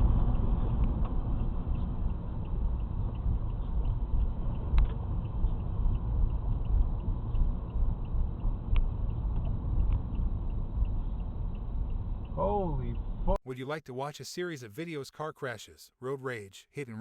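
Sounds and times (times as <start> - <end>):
car road and engine rumble: 0.0 - 13.4.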